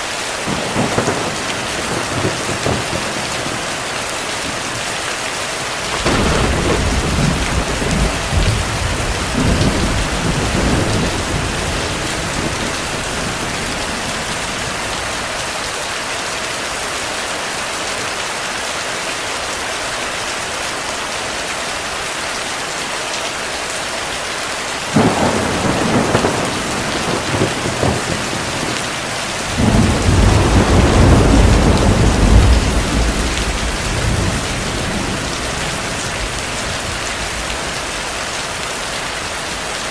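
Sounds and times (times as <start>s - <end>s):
heavy rain: 0.0s - 39.9s
thunder rolling: 5.9s - 15.2s, 25.0s - 37.7s.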